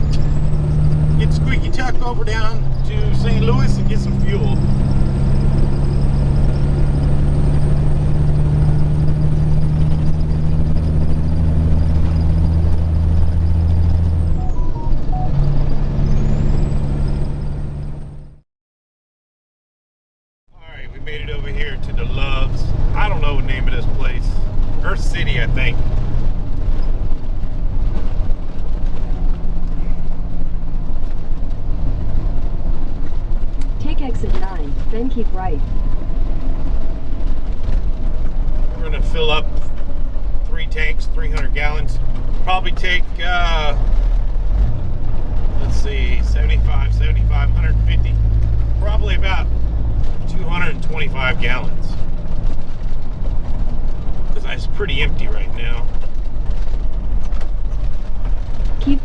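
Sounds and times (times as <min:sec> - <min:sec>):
road noise: 0:00.0 - 0:18.4, 0:20.5 - 0:59.0
truck diesel engine: 0:00.0 - 0:18.4, 0:20.6 - 0:59.0
high whine: 0:14.2 - 0:16.8.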